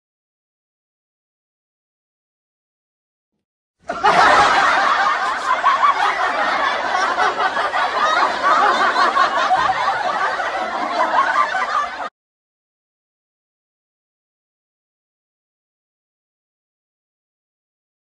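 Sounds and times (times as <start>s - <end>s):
many voices laughing: 3.8s - 12.1s.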